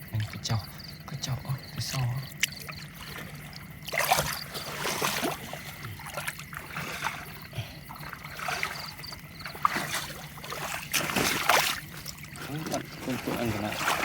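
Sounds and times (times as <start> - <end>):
low steady hum: 0.0 - 14.0
water splashing and sloshing: 0.0 - 14.0.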